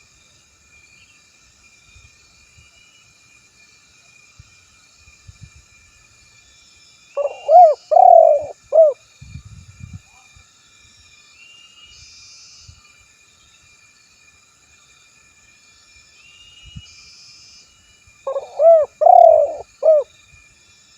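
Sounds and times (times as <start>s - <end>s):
insect drone: 0.0s - 20.9s
dove cooing: 7.2s - 9.0s, 18.3s - 20.0s
small birds chirping: 7.2s - 9.0s, 18.3s - 20.0s.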